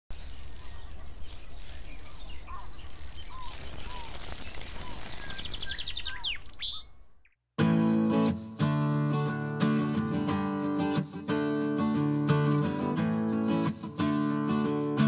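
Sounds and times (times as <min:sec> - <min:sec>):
birds chirping trills: 0:00.1 - 0:07.4
soft whistled bird notes: 0:00.2 - 0:07.4.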